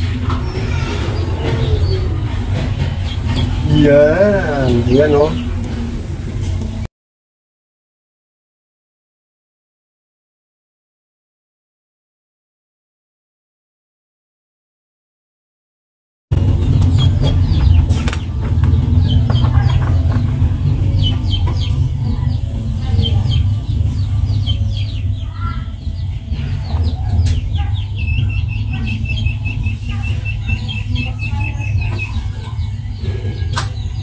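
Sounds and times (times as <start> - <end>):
birds chirping: 0.0 - 6.1, 16.3 - 34.0
steady low rumble: 16.3 - 34.0.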